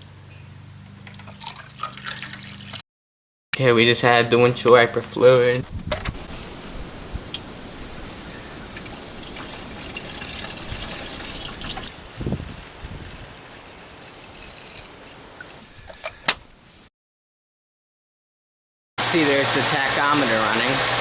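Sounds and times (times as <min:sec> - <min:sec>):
fluid trickling into reservoir: 0:01.0 - 0:02.8, 0:06.4 - 0:15.6.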